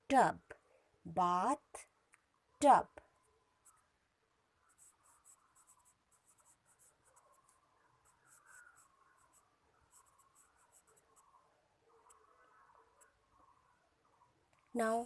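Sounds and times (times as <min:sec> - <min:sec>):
pen scratching handwriting: 0:04.7 - 0:11.3.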